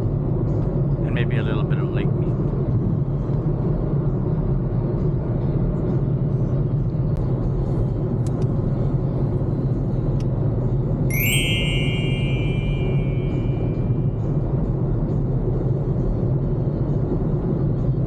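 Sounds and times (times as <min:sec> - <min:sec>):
music with sustained tones: 0:11.1 - 0:14.1.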